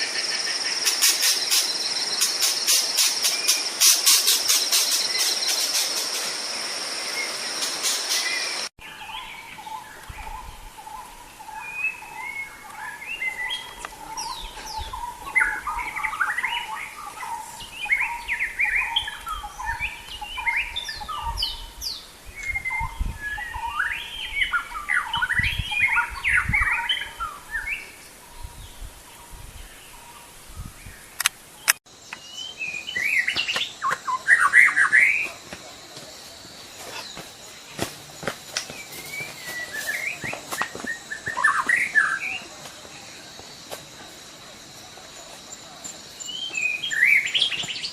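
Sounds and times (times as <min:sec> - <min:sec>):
loud steady hiss: 0:00.0 - 0:08.7.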